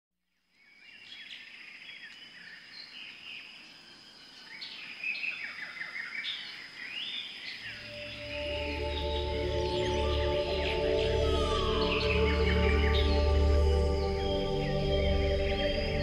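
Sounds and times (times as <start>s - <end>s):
birds chirping and trilling: 0.6s - 16.0s
thin steady high tone: 7.7s - 16.0s.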